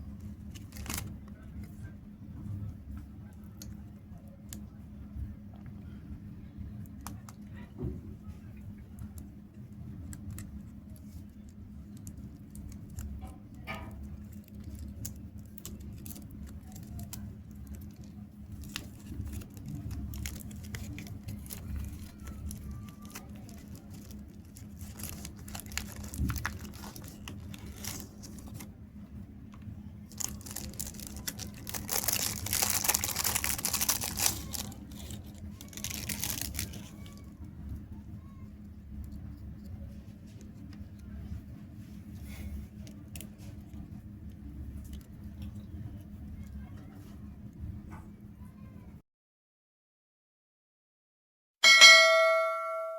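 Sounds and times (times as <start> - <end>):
faint steady hum: 0.0 - 49.0
wrappers crinkling and tearing: 0.2 - 1.6, 10.0 - 28.7, 30.0 - 37.4.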